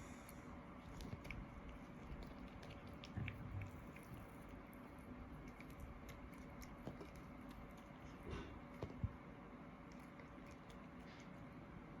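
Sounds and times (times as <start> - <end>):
dog chewing clicks: 0.8 - 9.2, 9.8 - 11.4.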